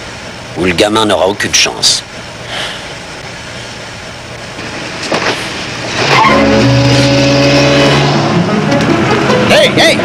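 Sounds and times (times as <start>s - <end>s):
car engine revving hard: 5.9s - 9.5s.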